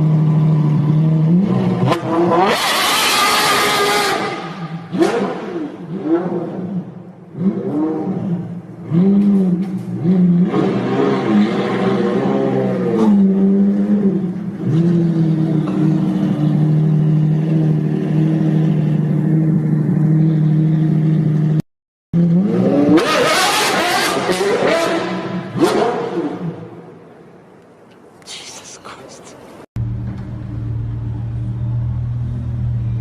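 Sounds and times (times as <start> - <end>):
car engine revving: 0.0 - 21.6, 22.2 - 26.8.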